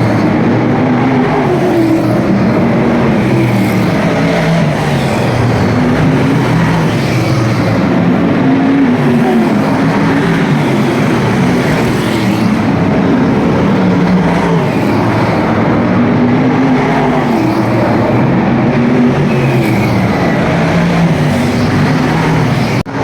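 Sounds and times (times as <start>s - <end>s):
race car engines roaring: 0.0s - 23.0s.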